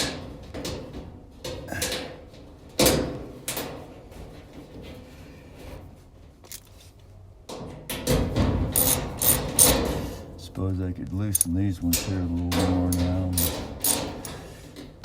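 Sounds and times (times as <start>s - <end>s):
metal panel clunks and knocks: 7.5s - 10.3s, 11.6s - 15.0s.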